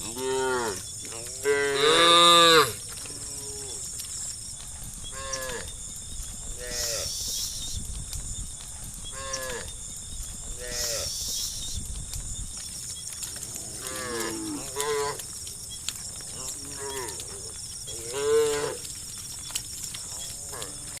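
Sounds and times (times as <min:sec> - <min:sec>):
cows mooing: 0:00.0 - 0:03.9, 0:10.6 - 0:11.1, 0:13.3 - 0:15.2, 0:16.3 - 0:18.9, 0:20.1 - 0:21.0.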